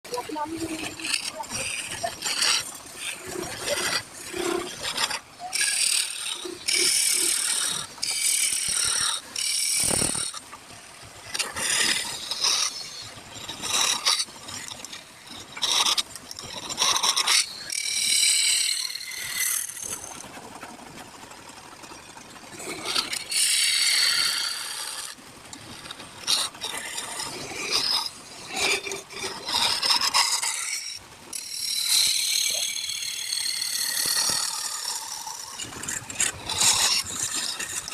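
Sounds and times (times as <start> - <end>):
lathe tool cutting wood: 0.1 - 10.4, 16.6 - 20.2, 23.0 - 37.9.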